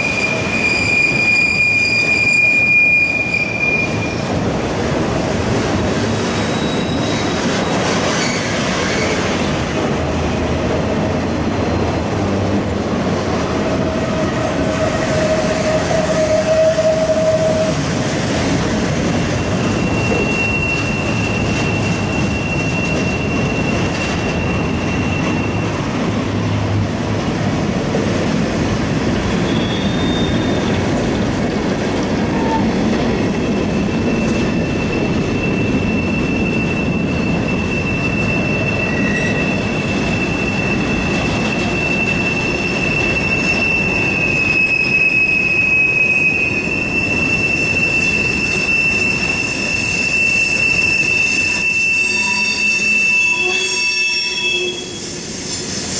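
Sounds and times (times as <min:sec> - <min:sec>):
rumble of passing train cars: 0:00.0 - 0:55.9
train wheels squealing: 0:00.0 - 0:55.9.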